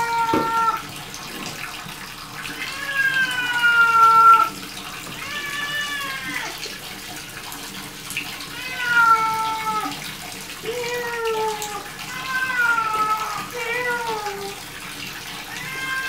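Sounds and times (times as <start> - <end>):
cat meowing in distress: 0.0 - 0.8, 2.6 - 4.6, 5.2 - 6.6, 8.5 - 10.0, 10.6 - 14.6, 15.5 - 16.0
water running into bathtub: 0.0 - 16.0.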